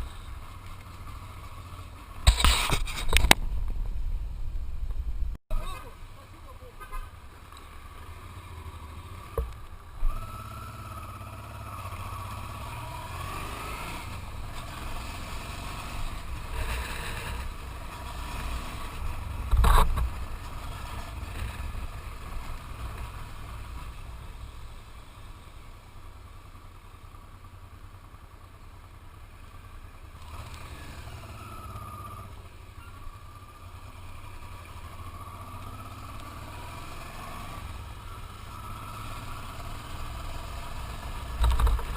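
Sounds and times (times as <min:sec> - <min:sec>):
low traffic rumble: 0:00.0 - 0:41.9
motorcycle engine: 0:00.0 - 0:41.9.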